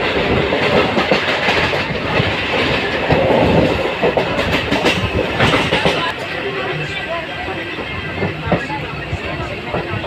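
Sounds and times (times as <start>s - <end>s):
wheels clacking over rail joints: 0.0s - 6.3s
train rumbling: 0.0s - 10.0s.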